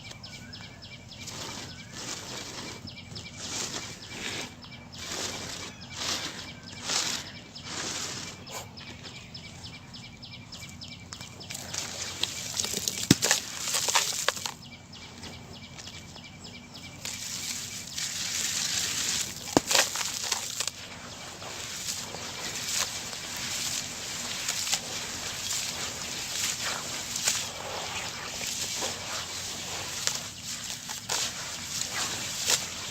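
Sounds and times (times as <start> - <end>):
crunching crumbling cement: 11.2 - 16.2, 16.8 - 32.9
sharp crack: 17.0 - 20.8.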